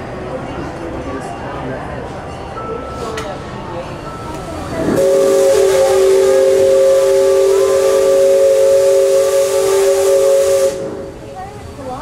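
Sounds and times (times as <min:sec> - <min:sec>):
steam hissing: 0:04.5 - 0:11.9
steam whistle chord: 0:04.8 - 0:11.3.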